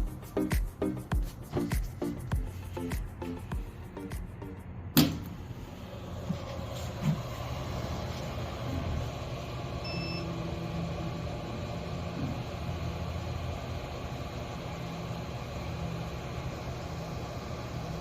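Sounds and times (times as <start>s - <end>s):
background music: 0.0s - 4.9s
short beep: 9.9s - 10.3s.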